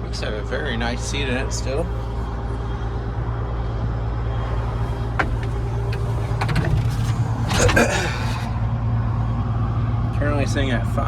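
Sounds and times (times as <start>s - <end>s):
diesel engine idling: 4.3s - 8.6s
cab controls clicking: 4.4s - 8.5s
rattle: 4.4s - 8.6s.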